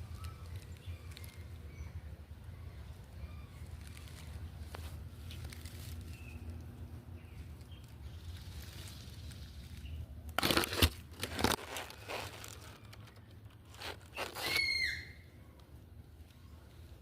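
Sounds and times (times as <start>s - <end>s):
paper or plastic crinkling: 0.0s - 1.6s, 3.6s - 6.6s, 8.1s - 14.7s.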